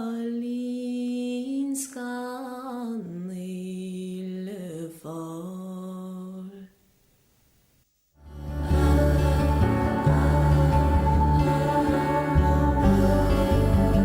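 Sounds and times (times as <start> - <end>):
music: 8.2 - 14.0
solo voice singing: 8.4 - 14.0.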